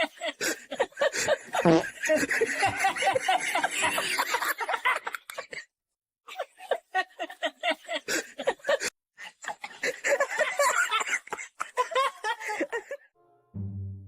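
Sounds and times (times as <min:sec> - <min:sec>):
person laughing hard: 0:00.0 - 0:05.6
brass music sting: 0:13.2 - 0:14.0.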